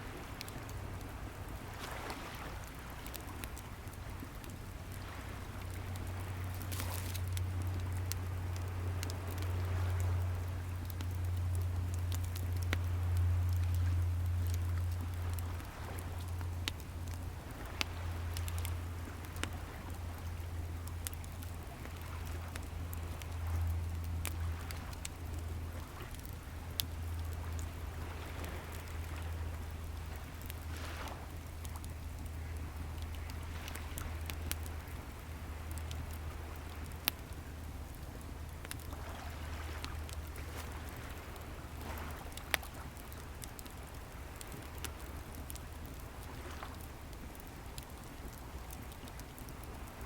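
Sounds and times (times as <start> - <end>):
wood fire crackling: 0.0 - 50.0
waves breaking on shore: 1.4 - 3.6, 27.5 - 31.4, 38.9 - 43.1
ocean waves rumbling: 32.2 - 42.9.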